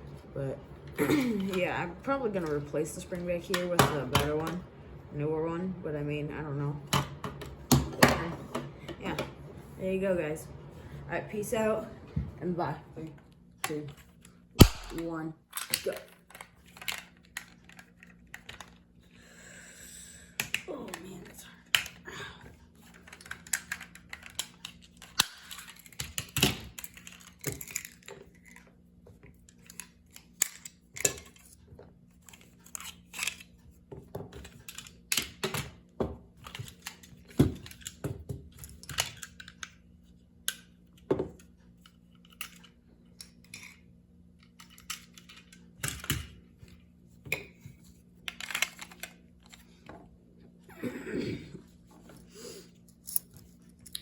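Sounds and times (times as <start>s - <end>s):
plastic pistol parts clicking: 14.6s - 17.8s.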